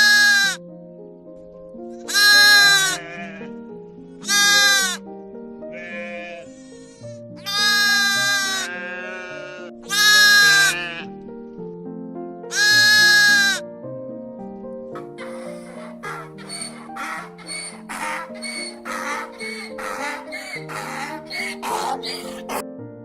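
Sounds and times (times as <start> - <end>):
livestock bleating: 0.0 - 0.6, 2.1 - 3.6, 4.2 - 5.0, 5.7 - 11.1, 12.5 - 13.6, 15.4 - 22.6
background music: 0.0 - 23.0.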